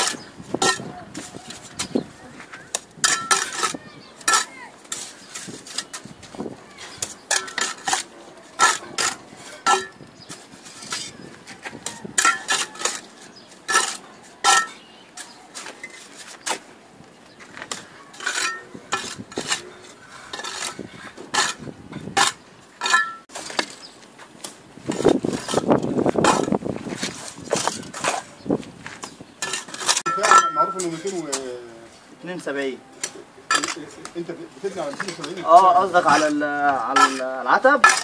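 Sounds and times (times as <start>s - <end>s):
scraping on brick: 0.0s - 16.7s, 17.4s - 31.6s, 33.0s - 38.0s.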